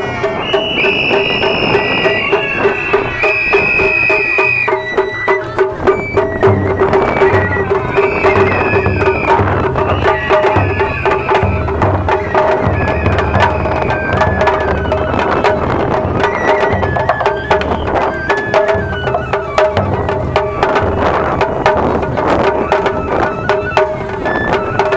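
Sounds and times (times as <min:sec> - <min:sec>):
high flute long notes: 0:00.0 - 0:21.8
drums and percussion: 0:00.0 - 0:24.9.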